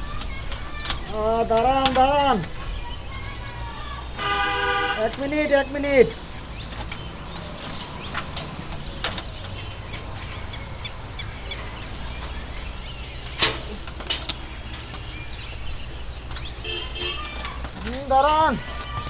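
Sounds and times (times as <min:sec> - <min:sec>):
faint bird chirps: 0:00.0 - 0:04.2
distant traffic rumble: 0:00.0 - 0:19.0.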